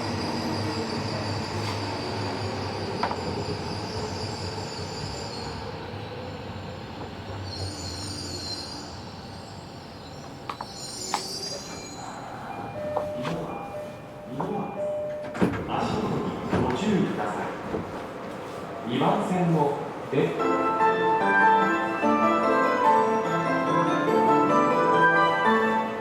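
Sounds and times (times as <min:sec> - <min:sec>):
electric train interior running noise: 0:00.0 - 0:18.6
wheel squeals: 0:07.4 - 0:12.3.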